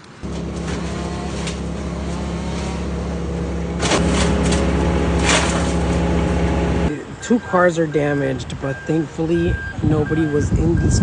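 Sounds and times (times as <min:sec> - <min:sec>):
motor humming: 0:00.0 - 0:06.9.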